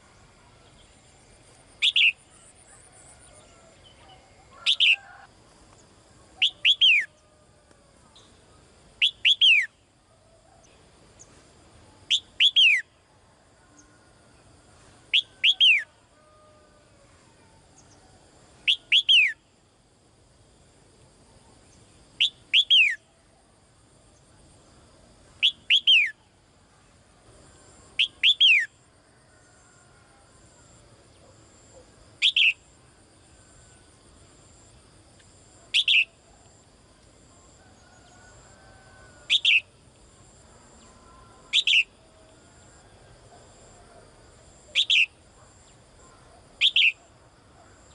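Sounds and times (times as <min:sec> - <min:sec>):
songbird calling with downward whistles: 0:01.7 - 0:02.8, 0:03.8 - 0:05.2, 0:06.4 - 0:07.2, 0:09.0 - 0:09.8, 0:12.1 - 0:13.0, 0:15.1 - 0:15.9, 0:18.6 - 0:19.4, 0:22.2 - 0:23.1, 0:25.4 - 0:26.2, 0:28.0 - 0:28.7, 0:32.2 - 0:32.6, 0:35.7 - 0:36.2, 0:39.3 - 0:39.7, 0:41.5 - 0:41.9, 0:44.7 - 0:45.2, 0:46.6 - 0:47.0.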